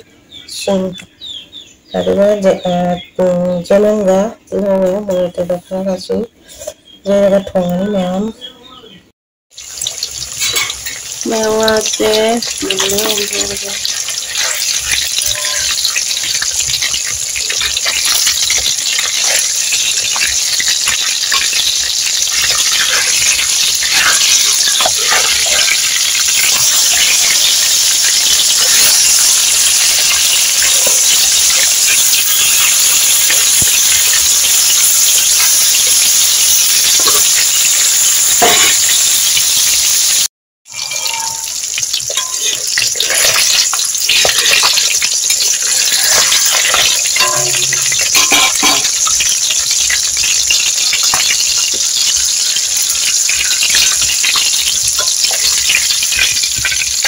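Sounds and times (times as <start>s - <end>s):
food deep-frying in oil: 9.5s - 57.0s
oil popping: 40.7s - 57.0s.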